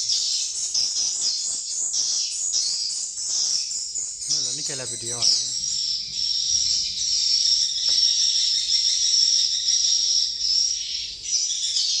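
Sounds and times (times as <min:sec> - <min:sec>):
swiftlets twittering: 0:04.1 - 0:05.6.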